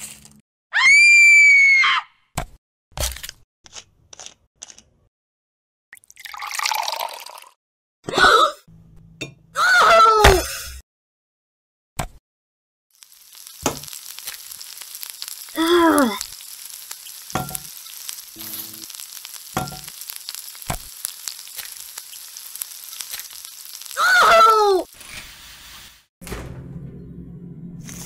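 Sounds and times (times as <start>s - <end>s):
food sizzling in a frying pan: 12.9s - 26.1s.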